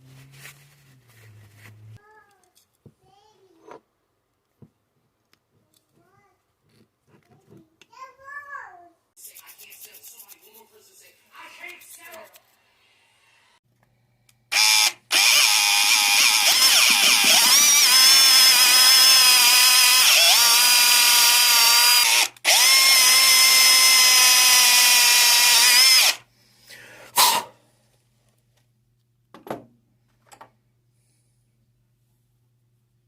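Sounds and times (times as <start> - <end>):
small electric motor whining: 14.5 - 26.2.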